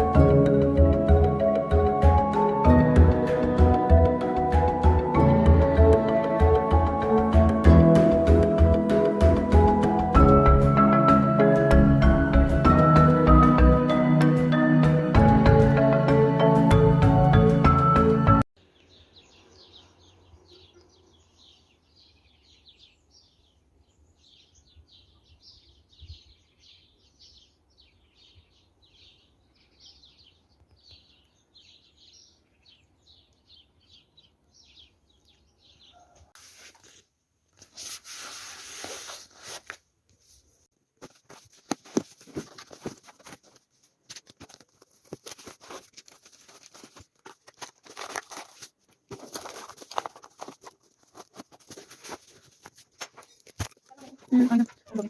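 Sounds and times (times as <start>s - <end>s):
paper rustle: 36.4s - 55.0s.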